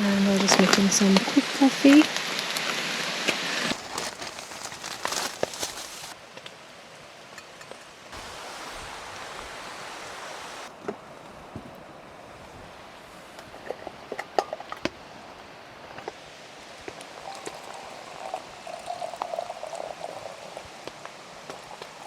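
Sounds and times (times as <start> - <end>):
steady rain hiss: 8.0 - 11.3, 16.1 - 22.0.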